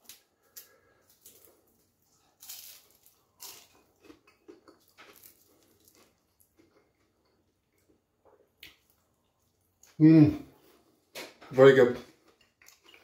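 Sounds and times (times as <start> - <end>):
crunching puff pastry: 0.0 - 10.0.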